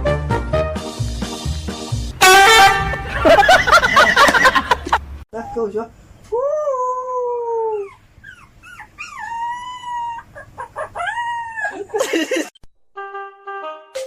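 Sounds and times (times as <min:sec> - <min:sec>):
dog yipping: 0:07.7 - 0:11.9
dog howling: 0:08.9 - 0:11.9.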